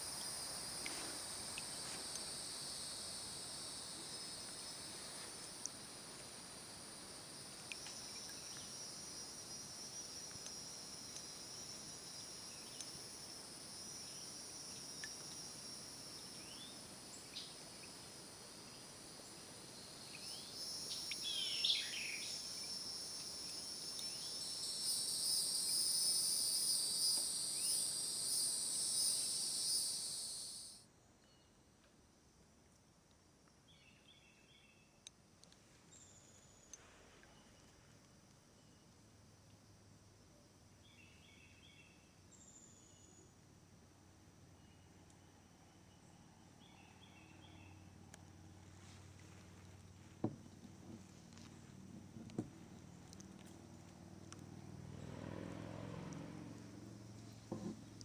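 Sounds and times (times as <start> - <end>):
insects buzzing: 0.0 - 30.8, 46.0 - 58.0
bird chirps: 20.2 - 22.4.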